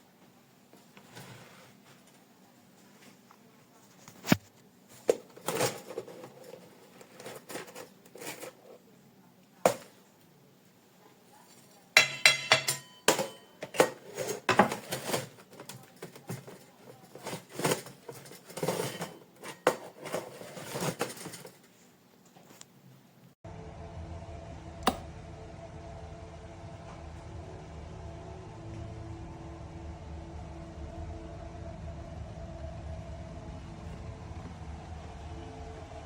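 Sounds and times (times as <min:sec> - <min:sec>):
kitchenware knocking and clattering: 0:12.0 - 0:21.6.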